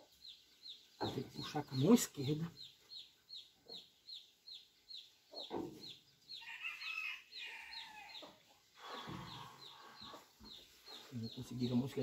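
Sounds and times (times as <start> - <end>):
bird peeping: 0.0 - 8.3.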